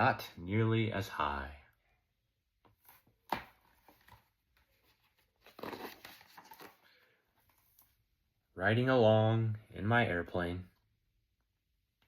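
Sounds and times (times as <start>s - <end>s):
paper page rustling: 2.8s - 7.9s.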